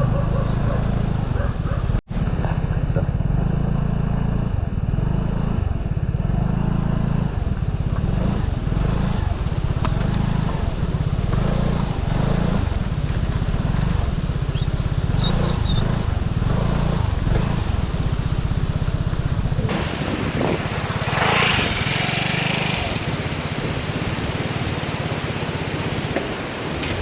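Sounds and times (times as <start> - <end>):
scooter engine running: 0.0 - 27.0
rushing hiss: 19.7 - 27.0.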